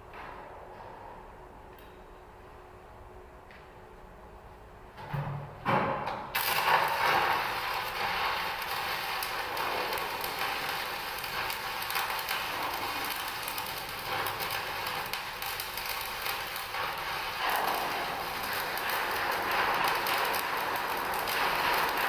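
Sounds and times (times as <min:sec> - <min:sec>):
arc welder crackling hiss: 0:06.3 - 0:22.0.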